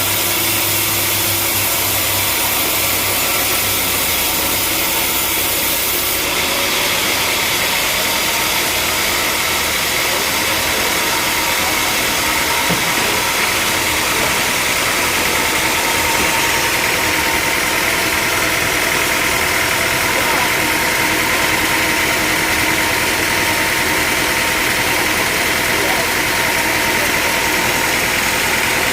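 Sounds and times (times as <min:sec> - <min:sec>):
sawmill machinery drone: 0:00.0 - 0:28.9.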